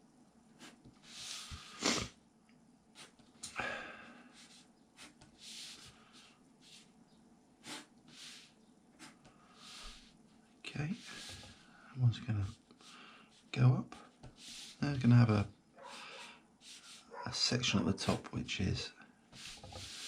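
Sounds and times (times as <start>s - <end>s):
pen drawing on paper: 0.6s - 1.9s, 3.0s - 3.2s, 4.3s - 6.9s, 7.6s - 10.2s, 10.9s - 11.7s, 14.1s - 15.0s, 15.9s - 17.1s, 19.3s - 20.0s
nasal sniffs: 0.6s - 2.2s, 7.6s - 10.0s.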